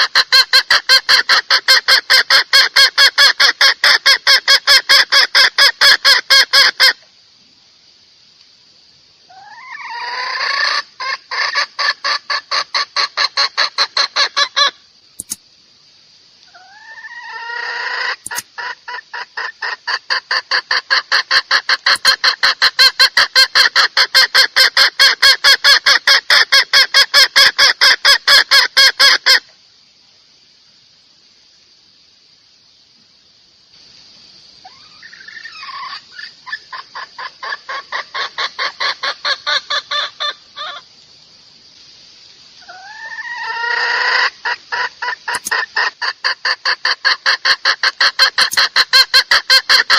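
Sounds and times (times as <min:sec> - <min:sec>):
hen clucking: 0:00.0 - 0:07.0, 0:16.6 - 0:29.4, 0:34.7 - 0:40.8, 0:42.6 - 0:49.9
faint high hiss: 0:00.0 - 0:49.9.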